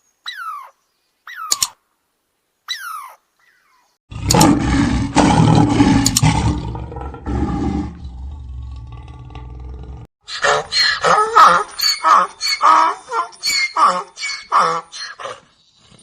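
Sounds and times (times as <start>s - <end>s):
big cat roaring: 4.1s - 10.1s.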